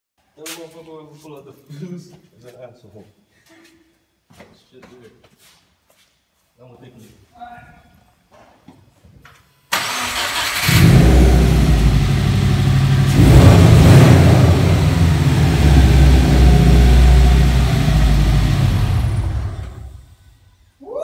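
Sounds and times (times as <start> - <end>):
engine cranking: 9.8 - 11.9
car engine running and revving: 10.6 - 20.1.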